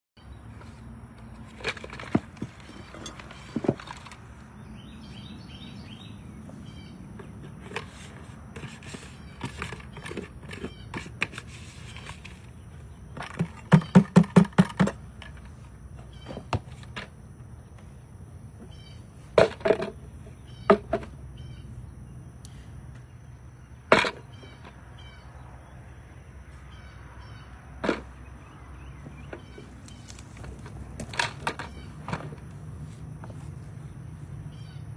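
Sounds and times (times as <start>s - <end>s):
birds chirping faintly: 0.2s - 14.4s, 17.4s - 32.5s, 33.1s - 34.9s
knocks and thuds: 13.2s - 15.0s.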